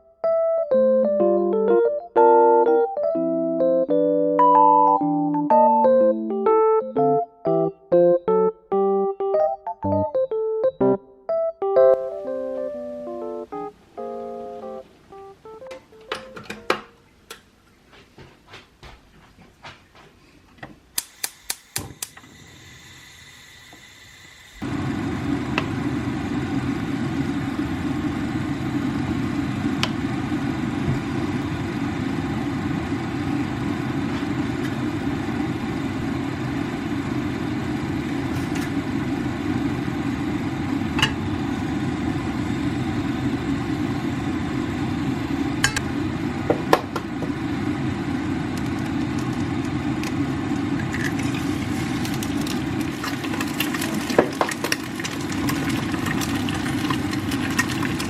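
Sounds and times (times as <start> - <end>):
machine humming: 21.4 - 58.0.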